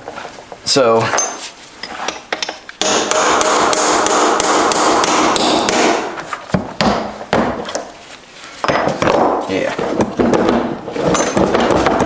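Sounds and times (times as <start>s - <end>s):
rapid hammering on metal: 2.8s - 6.2s.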